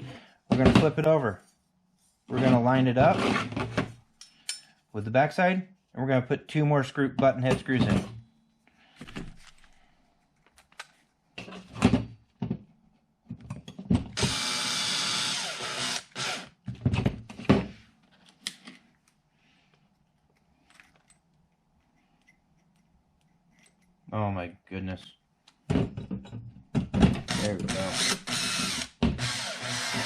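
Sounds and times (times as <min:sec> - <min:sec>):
clicks and clatter of parts: 0:09.0 - 0:11.7, 0:18.0 - 0:22.9
power drill driving screws: 0:14.2 - 0:16.6, 0:27.3 - 0:30.0.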